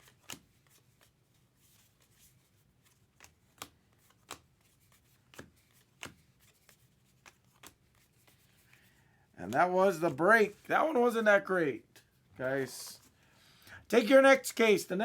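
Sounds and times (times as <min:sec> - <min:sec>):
trading cards clicking and snapping: 0:00.0 - 0:01.1, 0:02.8 - 0:08.8.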